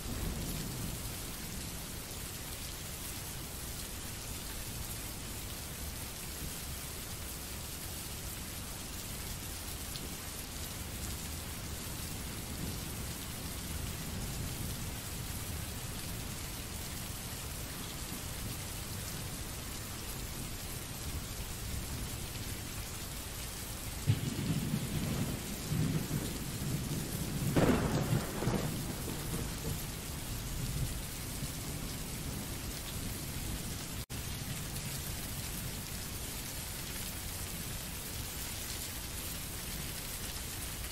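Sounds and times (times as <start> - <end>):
steady rain: 0.0 - 40.9
thunder rolling: 24.1 - 30.0.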